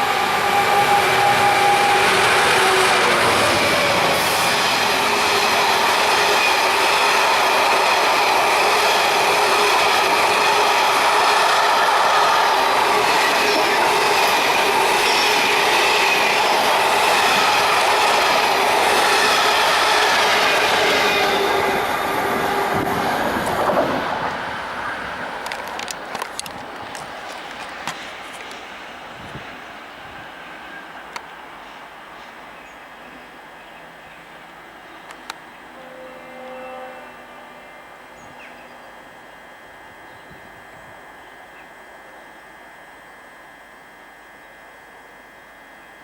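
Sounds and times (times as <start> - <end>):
high squealing wheels: 0.0 - 25.1
train wheels clattering on rails: 12.5 - 28.7.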